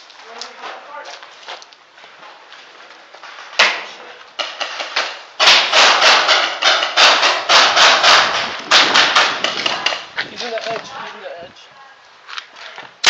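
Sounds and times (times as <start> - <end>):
paintball gun shots: 5.0 - 10.1.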